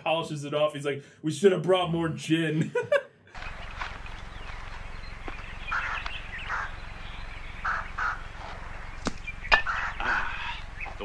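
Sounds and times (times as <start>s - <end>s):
birds calling: 3.3s - 11.0s
low hum and hiss: 3.4s - 11.0s.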